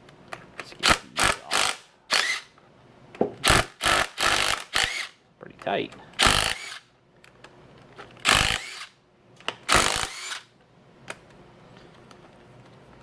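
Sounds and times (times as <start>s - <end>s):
power tool running: 0.8s - 2.5s, 3.4s - 5.1s, 6.2s - 6.8s, 8.2s - 8.9s, 9.7s - 10.4s.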